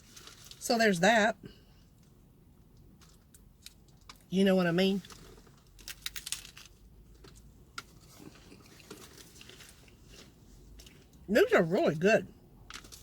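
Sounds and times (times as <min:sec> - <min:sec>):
crunching crisp taco shell: 0:07.2 - 0:11.2.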